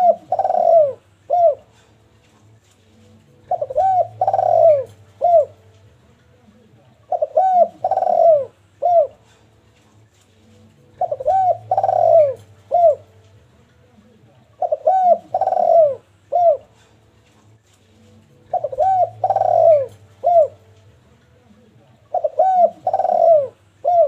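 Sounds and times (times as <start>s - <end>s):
dove cooing: 0.0s - 1.9s, 3.3s - 5.7s, 7.0s - 9.4s, 10.9s - 13.1s, 14.5s - 17.0s, 18.4s - 20.7s, 22.0s - 24.0s.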